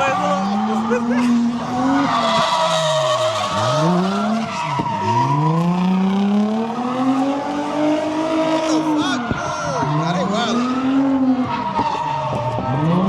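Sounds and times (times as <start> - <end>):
car engine revving: 0.0 - 13.0
tyres squealing and skidding: 0.0 - 13.0.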